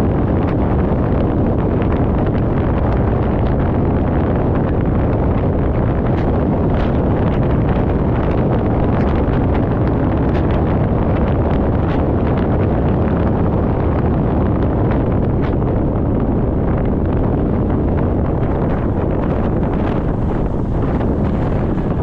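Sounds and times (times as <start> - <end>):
wind rush on microphone: 0.0 - 22.0.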